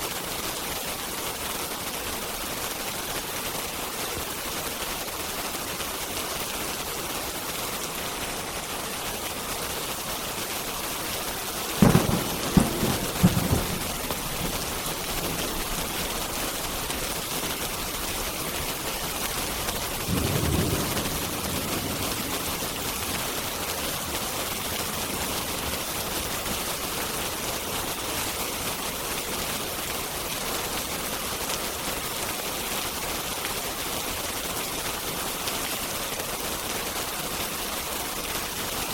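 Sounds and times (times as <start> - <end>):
steady rain: 0.0 - 38.9
thunder rumbling: 11.7 - 17.2, 17.8 - 25.6
thunderclap: 11.8 - 17.2, 19.9 - 25.6.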